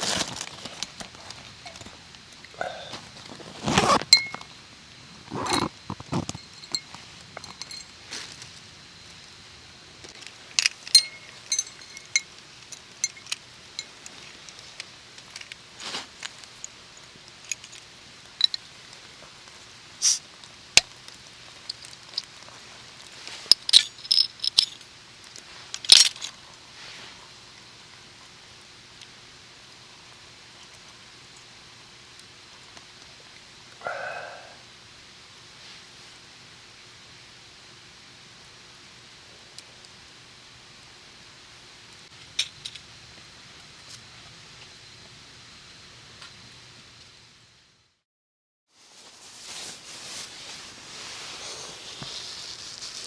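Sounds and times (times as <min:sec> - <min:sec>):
metal cookware clinking: 0:10.9 - 0:12.2.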